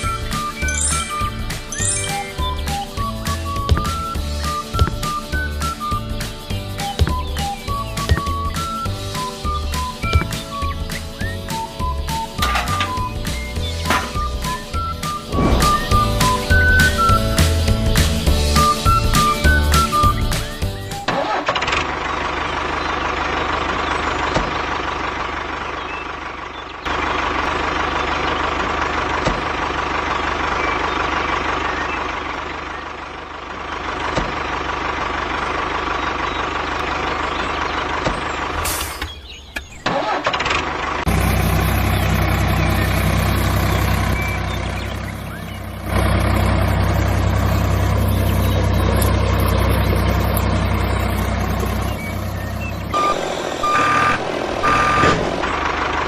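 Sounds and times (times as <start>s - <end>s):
deep loud engine running: 0.0s - 39.5s, 40.4s - 56.0s
whirring engine with whine: 0.0s - 56.0s.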